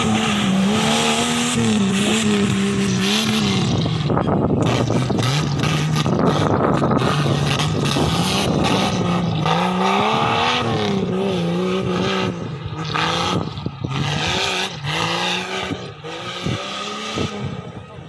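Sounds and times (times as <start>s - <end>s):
vehicle engine revving under load: 0.0s - 18.0s.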